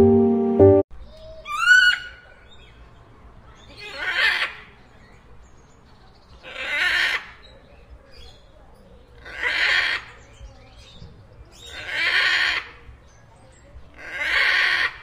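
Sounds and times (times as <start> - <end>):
toucan raspy calls: 1.4 - 2.4, 9.2 - 10.2, 11.6 - 12.8, 14.0 - 15.0.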